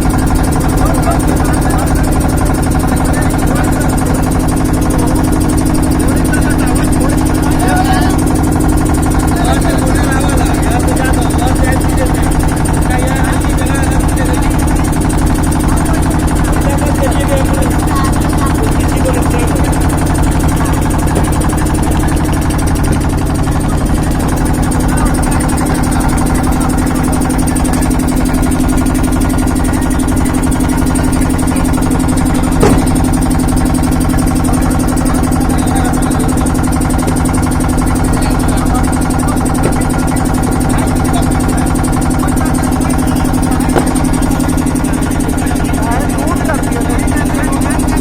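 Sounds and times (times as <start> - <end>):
low mechanical hum: 0.0 - 48.0
sharp knock: 32.6 - 33.2.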